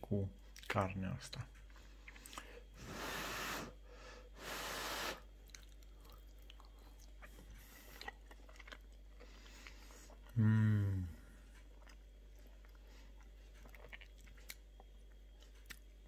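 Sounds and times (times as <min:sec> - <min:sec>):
soft chewing clicks: 0:00.4 - 0:02.7, 0:05.4 - 0:10.4, 0:11.4 - 0:16.0
breathy puffs of air: 0:02.8 - 0:05.3.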